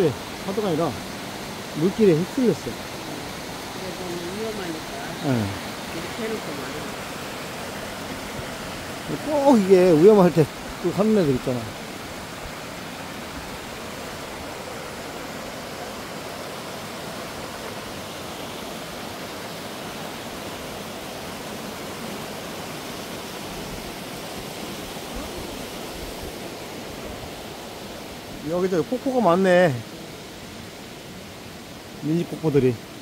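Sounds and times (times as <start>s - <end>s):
stream and small waterfalls rushing: 0.0s - 33.0s.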